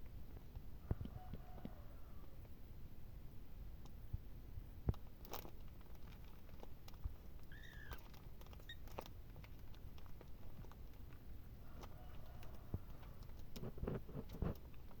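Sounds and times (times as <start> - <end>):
tiny squeak: 7.5 - 9.0.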